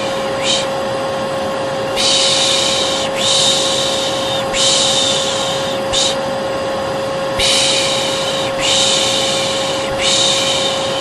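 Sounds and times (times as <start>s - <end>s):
person shushing: 0.0s - 0.8s, 2.0s - 6.2s, 7.4s - 11.0s
hair dryer running: 0.0s - 11.0s.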